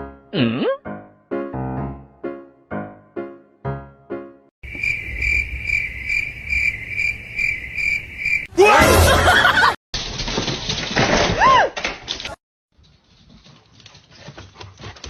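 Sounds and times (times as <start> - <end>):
piano notes: 0.8 - 4.5
cricket chirping: 4.6 - 8.5.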